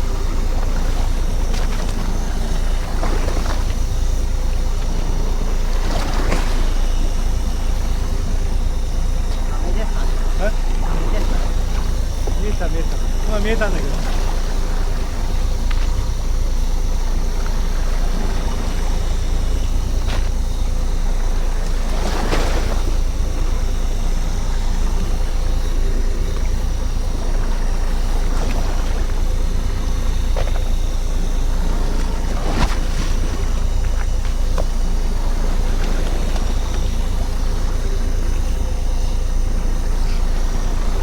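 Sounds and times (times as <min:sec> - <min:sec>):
boat engine rumbling: 0:00.0 - 0:41.0.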